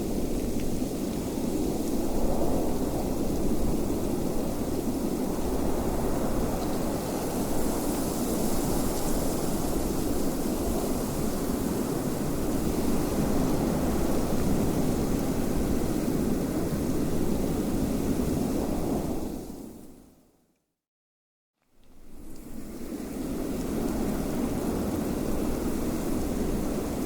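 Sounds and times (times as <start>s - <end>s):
low rush of wind: 0.0s - 19.9s, 21.9s - 27.0s.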